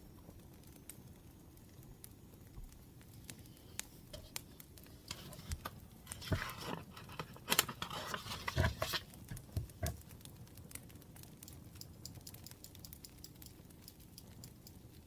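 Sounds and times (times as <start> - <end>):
wood fire crackling: 0.0 - 15.0
rustling: 3.2 - 10.0.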